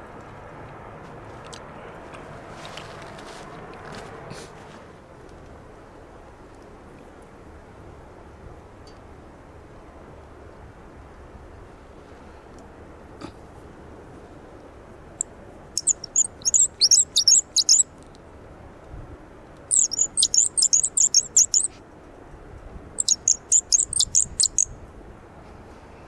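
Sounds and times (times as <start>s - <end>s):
wooden bird call chirping: 15.8s - 17.9s, 19.7s - 21.7s, 23.0s - 24.7s.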